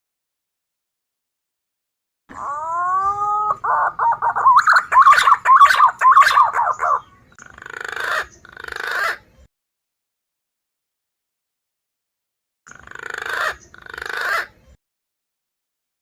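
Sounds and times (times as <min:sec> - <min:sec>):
pigeon call whistles: 0:02.6 - 0:07.0.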